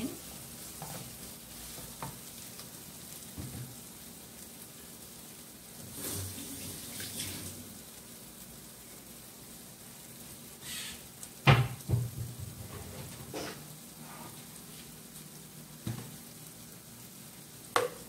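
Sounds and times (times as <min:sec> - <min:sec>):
spice paste sizzling in a wok: 0:00.0 - 0:18.0.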